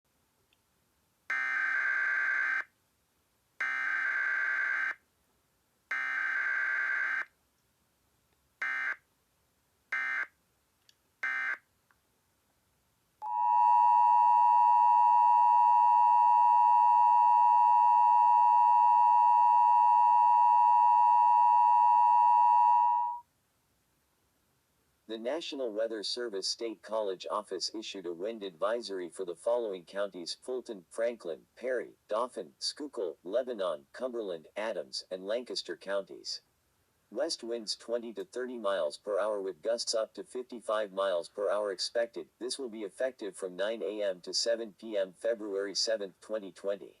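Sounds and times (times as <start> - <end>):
loud steady attention tone: 13.2 - 23.2.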